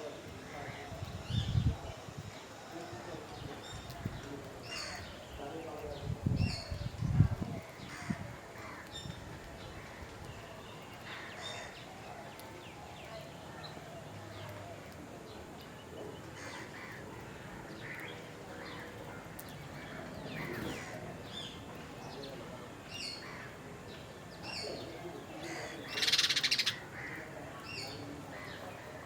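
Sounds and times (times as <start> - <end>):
wild birds chirping and whistling: 7.8 - 29.0
harsh rapid rattling bird call: 25.5 - 27.8.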